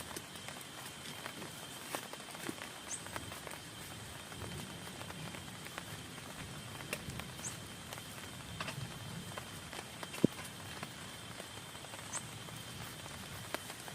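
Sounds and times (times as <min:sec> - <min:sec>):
rain pattering on a tent: 0:00.0 - 0:13.9.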